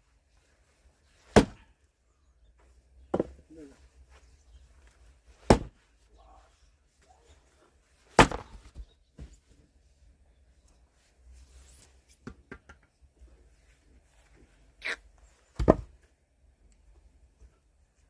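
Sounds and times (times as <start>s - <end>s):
axe chopping firewood: 1.3s - 1.6s, 5.4s - 5.8s, 8.1s - 8.8s, 15.6s - 15.9s
wood knock: 3.1s - 3.4s.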